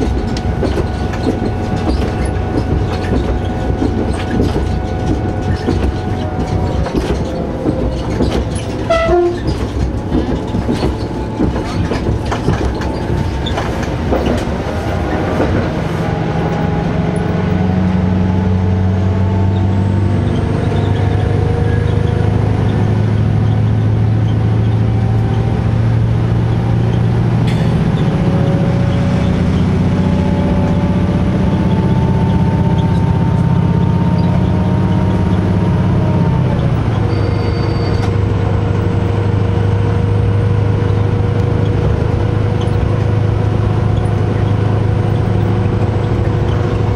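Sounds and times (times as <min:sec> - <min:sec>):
wheel clicks over rail joints: 0:00.0 - 0:15.7
railcar engine drone: 0:00.0 - 0:46.9.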